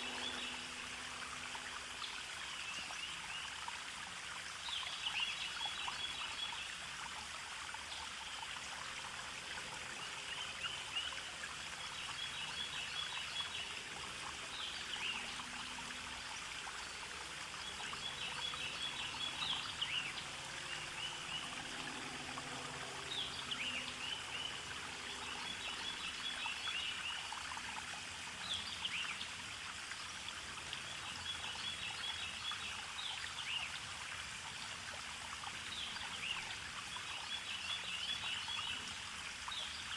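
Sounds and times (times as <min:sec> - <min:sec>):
stream trickling: 0:00.0 - 0:39.9
songbirds singing: 0:16.6 - 0:27.4.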